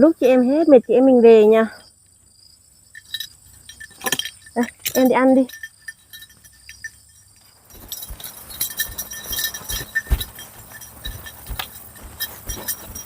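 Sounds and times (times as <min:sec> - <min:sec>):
light metallic clinking: 0:02.8 - 0:13.0
hooves knocking: 0:02.9 - 0:13.0.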